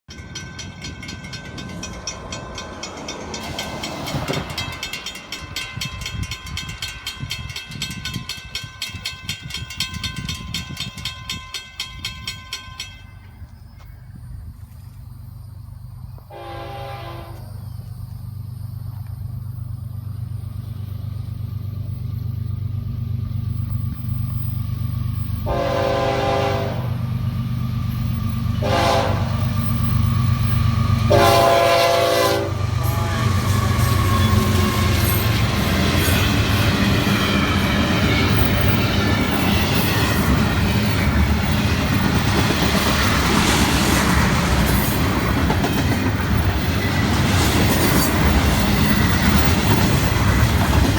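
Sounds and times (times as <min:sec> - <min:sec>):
train wheels clattering over rails: 0:00.1 - 0:14.0, 0:27.2 - 0:50.9
diesel train engine rumble: 0:00.1 - 0:50.9
locomotive horn blasts: 0:16.3 - 0:17.6, 0:25.4 - 0:27.0, 0:28.6 - 0:29.6, 0:31.1 - 0:35.2.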